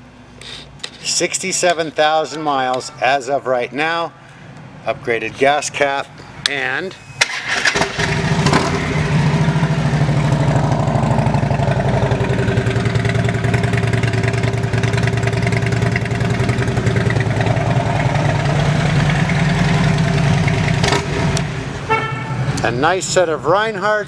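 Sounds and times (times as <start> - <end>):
motorcycle engine idling: 8.8 - 22.3.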